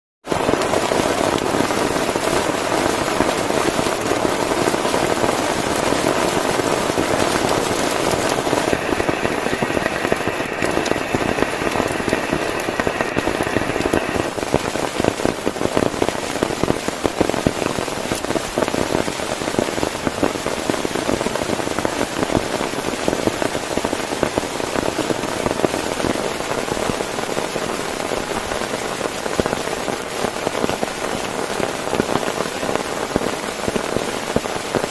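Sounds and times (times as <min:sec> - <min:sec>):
heavy rain on a tent: 0:00.2 - 0:34.9.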